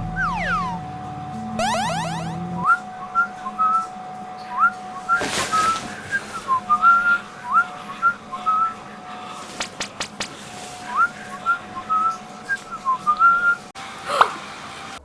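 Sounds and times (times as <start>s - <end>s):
steady held tone: 0.0s - 0.9s, 1.6s - 2.5s
whistled tune: 0.0s - 0.9s, 1.6s - 2.4s.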